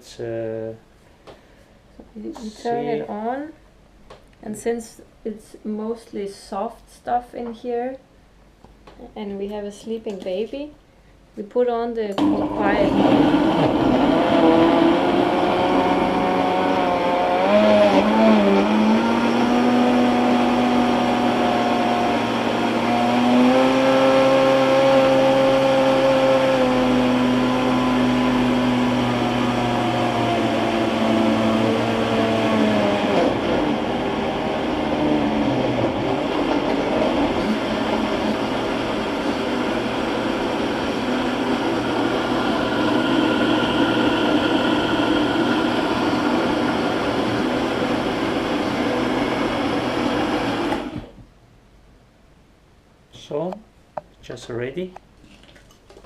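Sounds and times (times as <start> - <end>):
blender motor whirring: 12.2 - 51.2.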